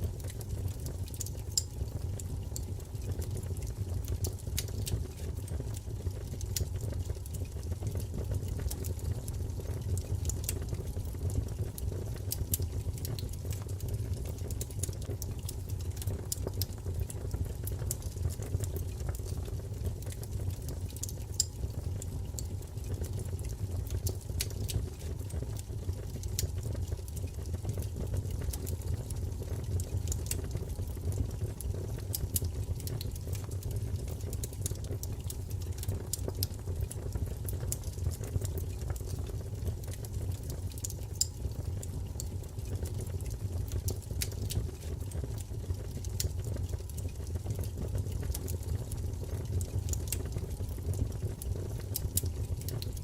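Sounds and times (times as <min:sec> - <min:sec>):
fire crackling and popping: 0:00.0 - 0:53.0
fire rumbling in fireplace: 0:00.0 - 0:53.0.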